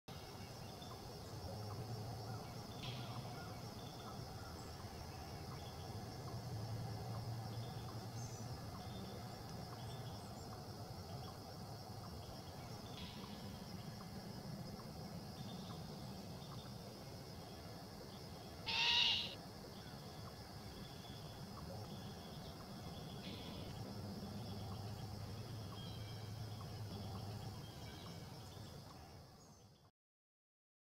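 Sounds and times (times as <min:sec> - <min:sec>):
young owl hissing screech: 0:18.7 - 0:19.4.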